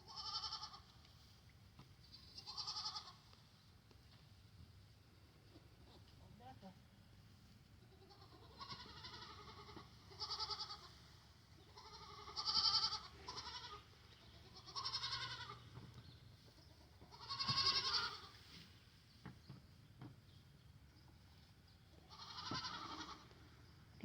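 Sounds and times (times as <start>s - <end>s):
goats bleating: 0.1s - 0.9s, 2.4s - 3.2s, 7.9s - 11.0s, 11.7s - 15.7s, 16.8s - 18.4s, 22.1s - 23.3s.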